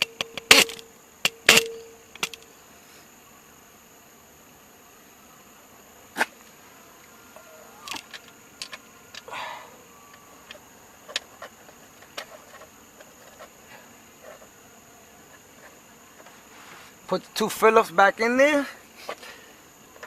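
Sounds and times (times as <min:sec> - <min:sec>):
short rustling scrape: 0:15.6 - 0:17.0.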